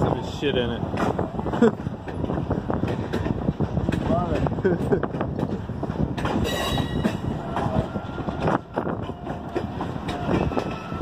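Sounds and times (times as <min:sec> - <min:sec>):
railroad cars rumbling past: 0:00.0 - 0:11.0
high wheel squeals: 0:06.4 - 0:11.0.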